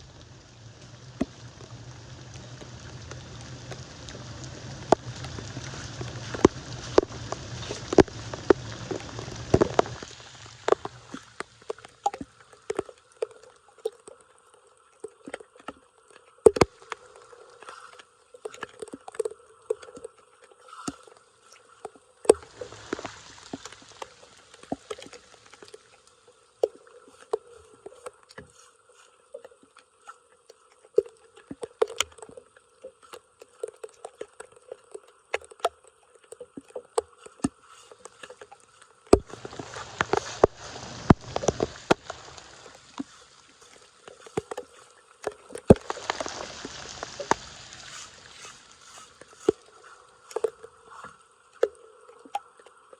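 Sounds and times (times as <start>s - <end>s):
floodwater splashing at storm drain: 0.0s - 13.3s, 22.2s - 26.0s, 39.1s - 51.2s
faint steady hum: 0.0s - 52.9s.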